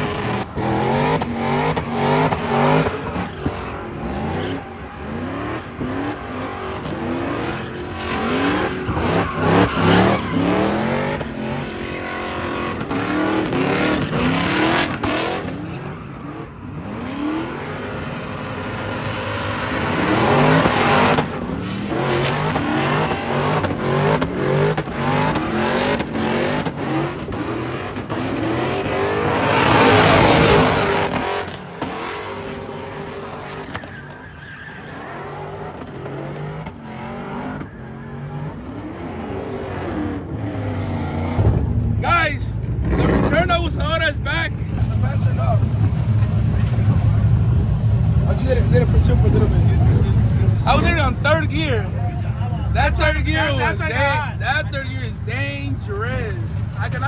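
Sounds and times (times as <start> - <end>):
car engine revving hard: 0.0 - 34.2, 34.8 - 57.0
tyres squealing and skidding: 0.0 - 57.0.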